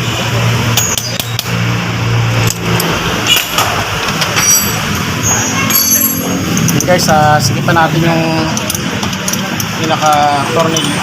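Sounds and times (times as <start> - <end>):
metallic tool clicks and clinks: 5.7 - 7.2, 8.4 - 11.0.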